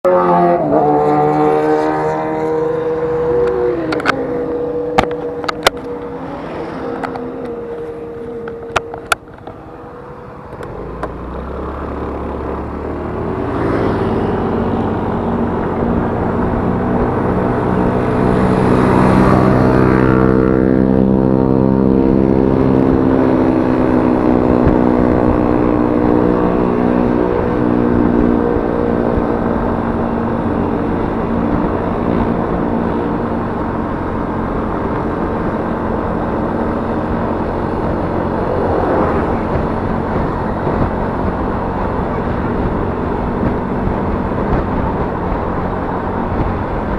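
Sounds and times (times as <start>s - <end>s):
scooter engine running: 0.0s - 46.9s
wind rush: 12.9s - 46.9s.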